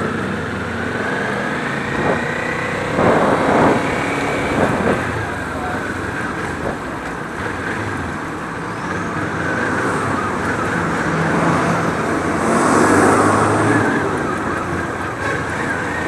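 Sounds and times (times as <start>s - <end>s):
motorcycle engine running: 0.0s - 12.2s
road noise: 0.0s - 16.0s
surrounding traffic: 0.0s - 16.0s.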